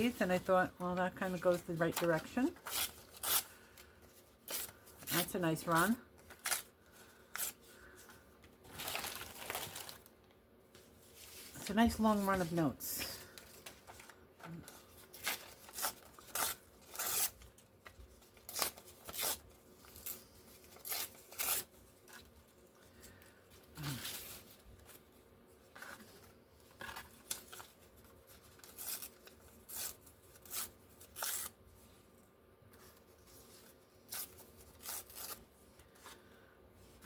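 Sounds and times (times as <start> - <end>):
scissors cutting paper: 1.5 - 3.6, 4.4 - 6.7, 14.7 - 22.3, 28.4 - 31.5, 34.1 - 35.5.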